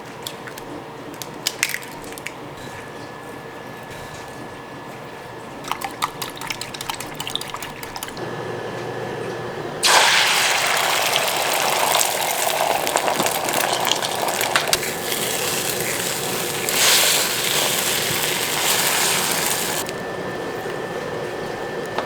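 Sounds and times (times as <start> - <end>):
water gushing from kitchen tap: 5.7 - 8.2, 9.8 - 22.0.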